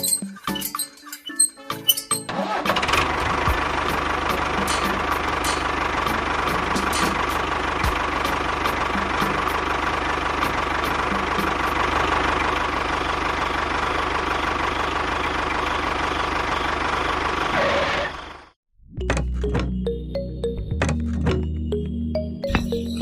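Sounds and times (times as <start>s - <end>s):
engine running steadily: 2.3s - 18.5s.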